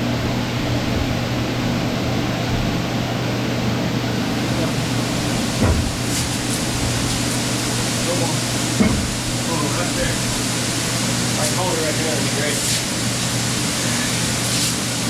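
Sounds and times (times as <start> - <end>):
dust collection blower running: 3.7 - 15.0
thump: 5.6 - 6.3.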